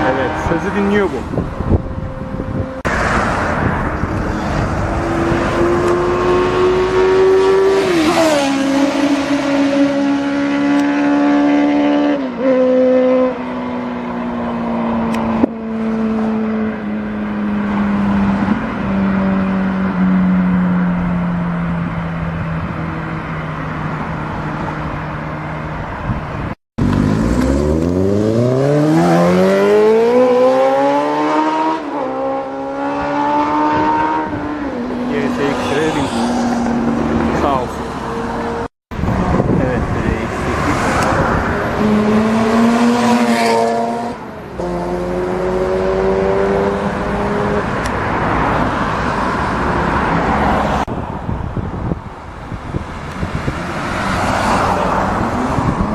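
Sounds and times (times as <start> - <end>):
motorcycle engine revving and shifting: 4.0 - 14.0, 26.8 - 48.4.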